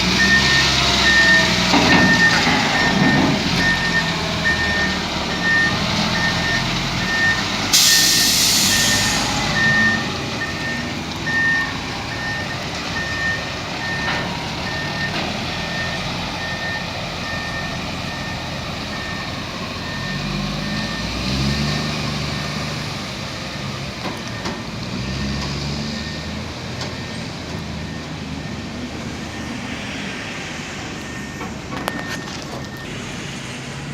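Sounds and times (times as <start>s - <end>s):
truck reverse alarm beeping: 0.0s - 33.2s
diesel engine: 0.0s - 33.9s
air brakes hissing: 7.7s - 10.7s.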